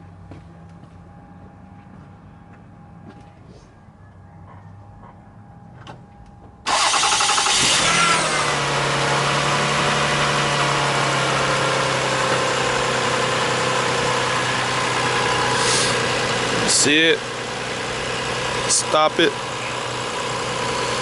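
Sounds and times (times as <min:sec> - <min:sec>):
car engine idling: 0:05.0 - 0:21.0
starter cranking engine: 0:06.7 - 0:09.0.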